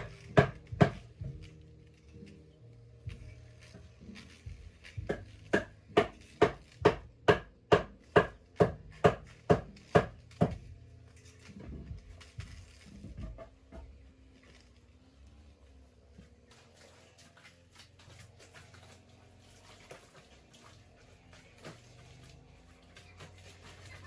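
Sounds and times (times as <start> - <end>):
faint irregular knocks: 11.4 - 14.0.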